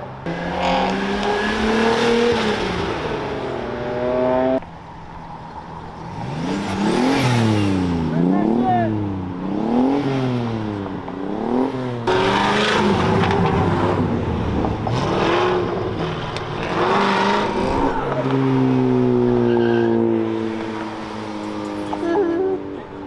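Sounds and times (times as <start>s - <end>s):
car engine revving: 0.0s - 23.0s
tire squeal: 12.1s - 23.0s.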